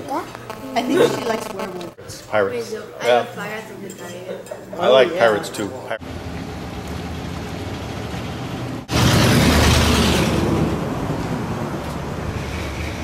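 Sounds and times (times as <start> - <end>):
vehicle road noise: 6.0 - 13.0.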